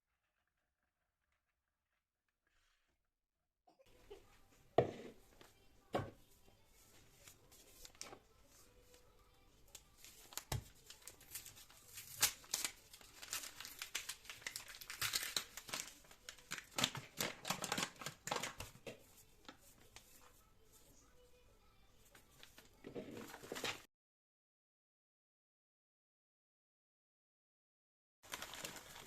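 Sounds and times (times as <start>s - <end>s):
crinkling material rustling: 6.6s - 20.4s, 28.3s - 29.0s.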